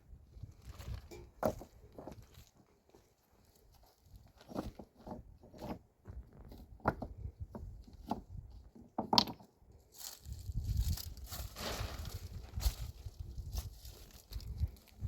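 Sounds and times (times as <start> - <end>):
handling knocks and scrapes: 0.6 - 3.0, 3.9 - 9.5, 10.7 - 14.1.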